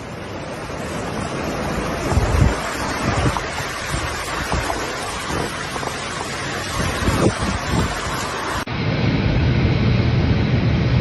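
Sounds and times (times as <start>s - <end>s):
rough sea breaking: 0.0s - 8.7s
wind buffeting microphone: 0.0s - 11.0s.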